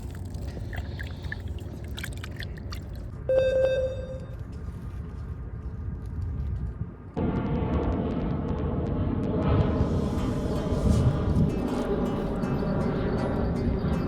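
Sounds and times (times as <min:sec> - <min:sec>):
short ringing tone: 0:03.3 - 0:04.4
wind on microphone: 0:04.6 - 0:14.0
background music: 0:07.9 - 0:14.0.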